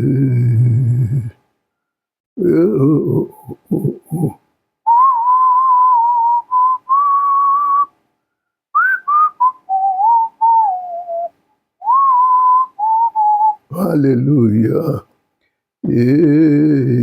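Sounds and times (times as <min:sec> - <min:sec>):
person whistling a melody: 0:04.9 - 0:07.9, 0:08.8 - 0:13.6.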